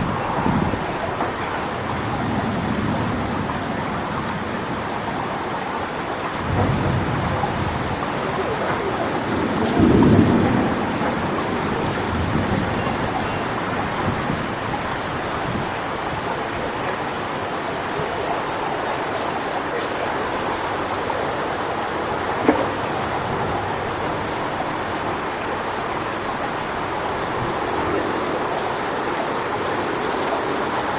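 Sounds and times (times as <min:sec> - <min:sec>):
low rumbling wind swells: 0:00.0 - 0:19.1
storm wind through palm fronds: 0:00.0 - 0:30.9.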